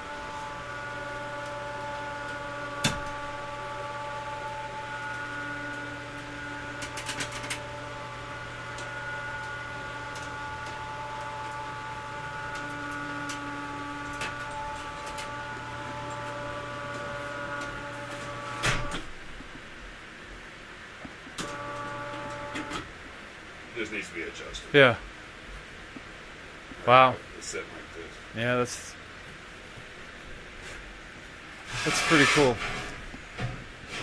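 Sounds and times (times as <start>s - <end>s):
electric winch motor whine: 0.0s - 19.4s, 21.4s - 22.9s.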